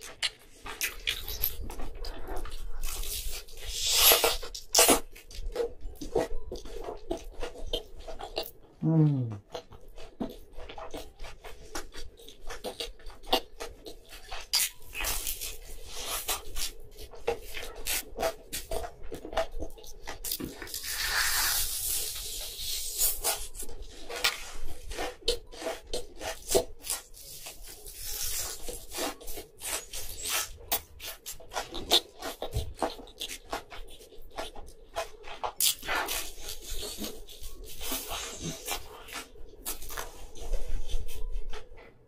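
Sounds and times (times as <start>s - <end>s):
chewing mouth clicks: 0.0s - 8.6s
crunching food: 0.0s - 42.0s.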